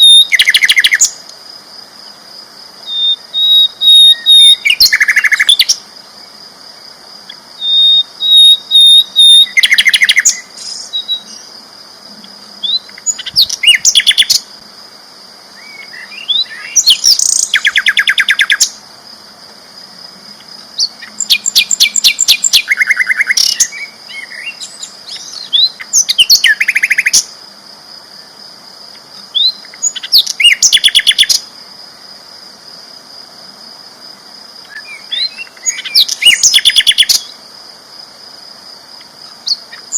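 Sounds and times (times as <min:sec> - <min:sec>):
flycatcher trilling song: 0:00.0 - 0:01.3, 0:02.8 - 0:14.6, 0:15.5 - 0:18.8, 0:19.9 - 0:27.4, 0:28.1 - 0:31.6, 0:34.6 - 0:37.5, 0:39.0 - 0:39.9.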